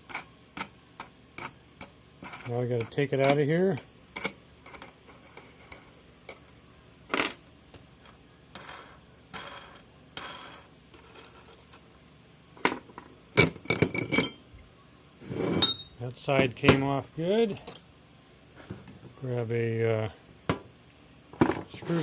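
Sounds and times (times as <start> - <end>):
metallic clinks and knocks: 12.6 - 14.5, 15.6 - 16.0.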